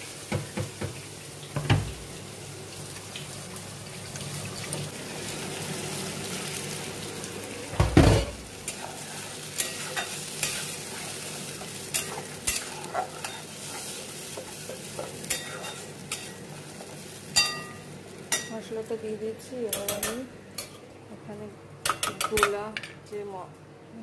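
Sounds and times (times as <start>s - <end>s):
spice paste sizzling in oil: 0.0s - 20.8s
metal spatula scraping a pan: 11.9s - 16.4s.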